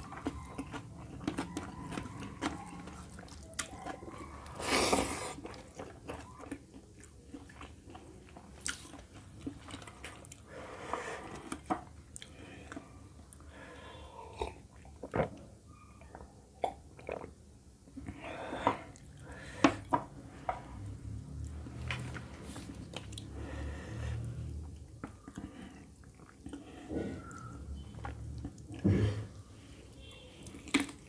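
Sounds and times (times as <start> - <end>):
chewing wet mouth sounds: 0.0 - 13.5, 24.2 - 28.8, 29.8 - 31.0.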